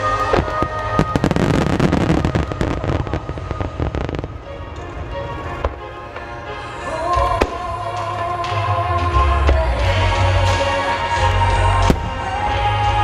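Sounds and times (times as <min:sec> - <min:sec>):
fireworks bangs and crackle: 0:00.0 - 0:06.3
music: 0:00.0 - 0:13.0.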